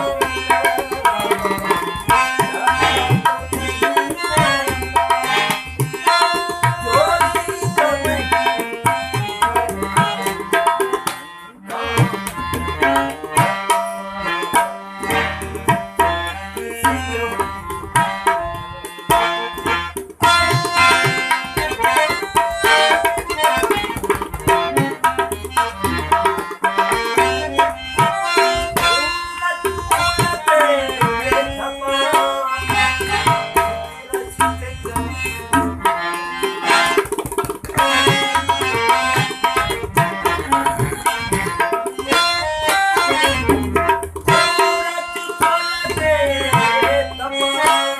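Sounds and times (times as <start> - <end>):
tabla drumming: 0.0 - 47.9.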